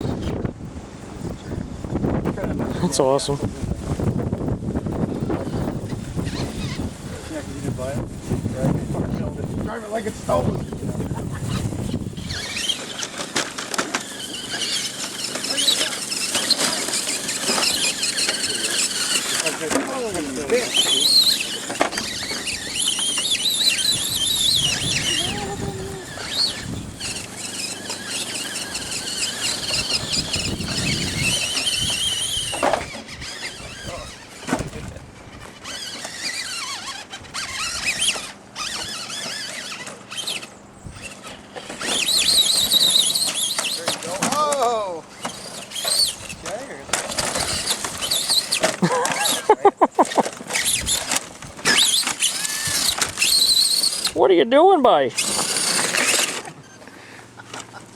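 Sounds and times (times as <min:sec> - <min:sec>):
rc truck motor whining: 0:00.0 - 0:57.9
clicks and knocks over rough ground: 0:12.4 - 0:24.6, 0:29.4 - 0:54.2.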